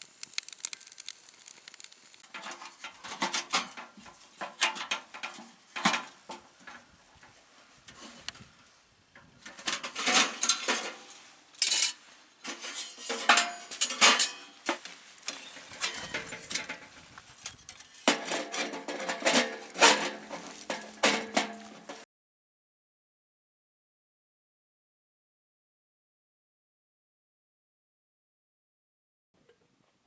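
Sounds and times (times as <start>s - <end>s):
metal cookware clinking and scraping: 2.3s - 6.2s, 9.4s - 22.0s.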